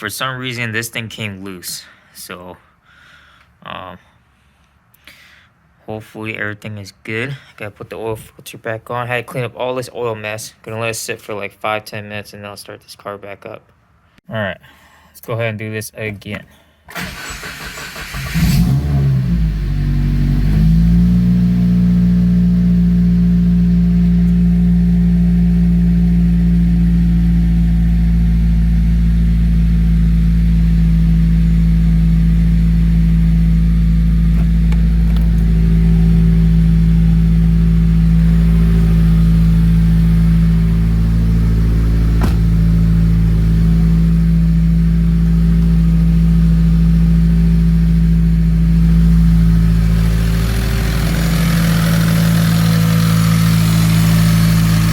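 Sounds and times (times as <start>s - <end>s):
car engine idling: 17.0s - 54.9s.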